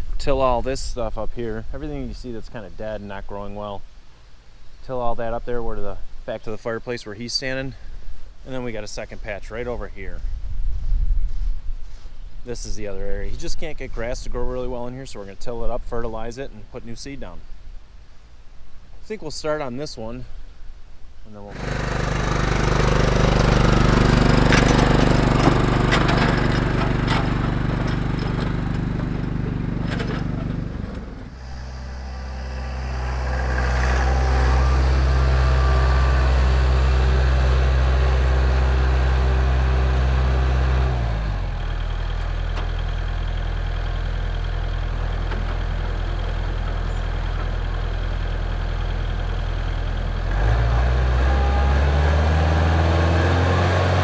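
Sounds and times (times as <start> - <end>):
tractor diesel engine running: 21.5 - 54.0.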